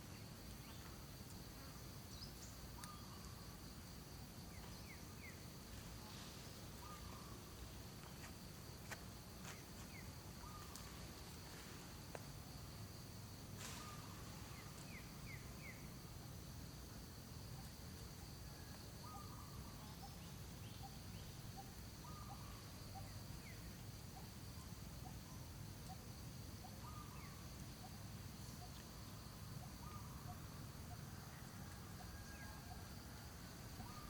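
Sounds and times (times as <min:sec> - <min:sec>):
high insect drone: 0:00.0 - 0:34.0
falling bird chirps: 0:13.5 - 0:15.8.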